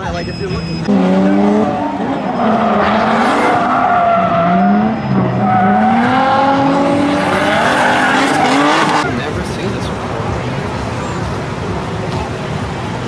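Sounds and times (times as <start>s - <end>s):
tires squealing and skidding: 0.0s - 9.2s
car engine revving high: 0.6s - 11.7s.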